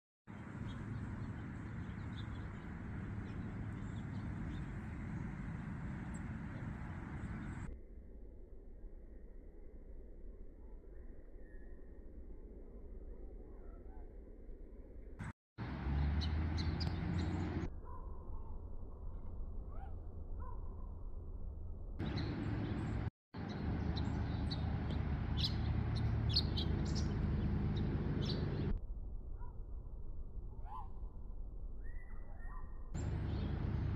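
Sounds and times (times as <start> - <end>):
small birds chirping: 0.3 - 7.7, 15.6 - 17.7, 22.0 - 28.8, 31.8 - 33.9
outdoor background noise: 0.3 - 33.9
faint bird chirps: 10.6 - 12.2, 12.8 - 14.2, 30.5 - 31.1, 31.8 - 33.9.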